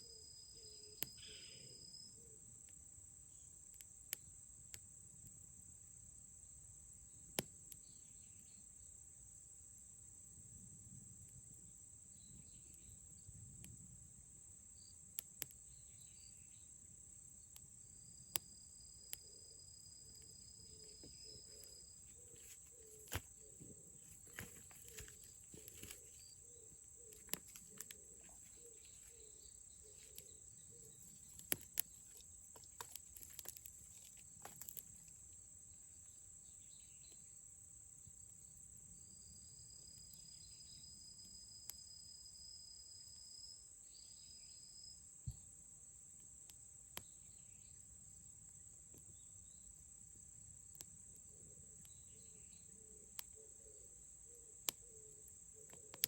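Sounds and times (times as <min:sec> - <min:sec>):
campfire crackling: 0:21.0 - 0:35.4.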